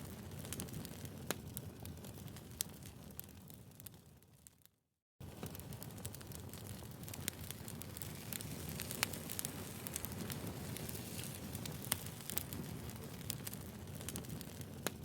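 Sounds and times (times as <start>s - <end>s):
firewood crackling and popping: 0.0s - 4.6s, 5.2s - 15.0s
low hiss of flames: 5.2s - 15.0s.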